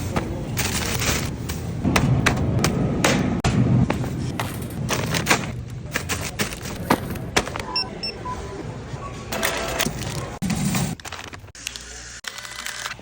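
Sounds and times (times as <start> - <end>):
goods knocking and rustling: 3.8 - 7.7
scanner beeps: 7.7 - 8.6.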